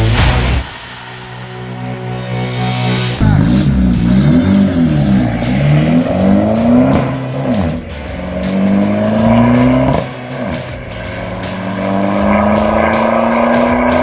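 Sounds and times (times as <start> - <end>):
background music beat: 0.0 - 14.0
diesel engine accelerating: 3.0 - 14.0.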